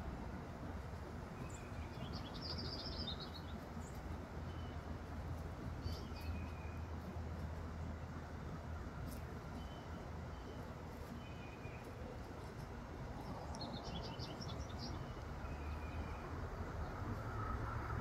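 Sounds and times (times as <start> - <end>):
steady low hum: 0.0 - 18.0
small bird chirping: 1.4 - 4.9, 5.8 - 6.9, 13.2 - 16.3.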